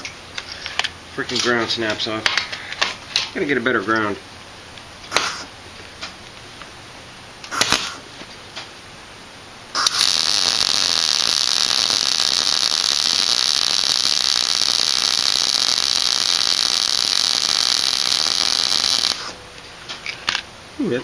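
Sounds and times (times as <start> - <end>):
welding arc hissing: 7.5 - 8.1, 9.7 - 19.4.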